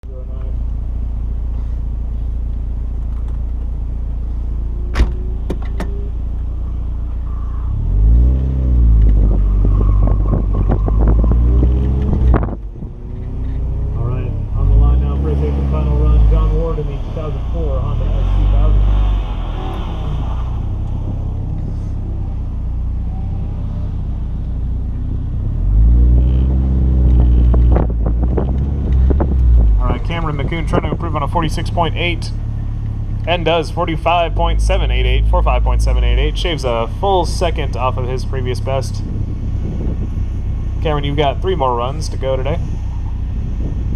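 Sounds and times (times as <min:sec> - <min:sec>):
car engine rumbling: 0:00.0 - 0:43.9
car engine revving: 0:01.0 - 0:43.9.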